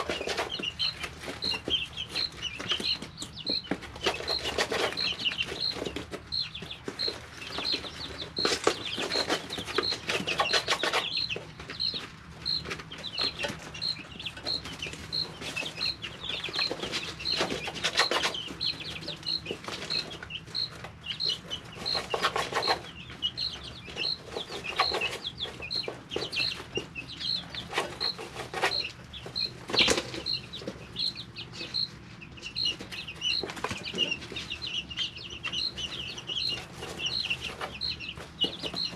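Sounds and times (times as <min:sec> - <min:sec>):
wing flapping and scratching: 0:00.0 - 0:31.1
chick peeping: 0:00.0 - 0:38.9
chicks chirping softly: 0:00.0 - 0:38.9.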